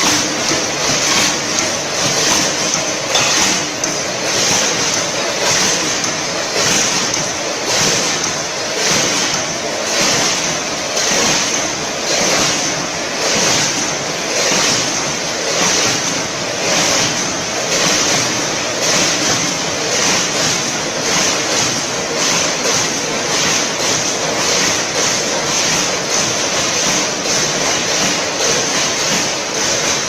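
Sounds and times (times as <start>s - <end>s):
filling machine running: 0.0s - 30.0s.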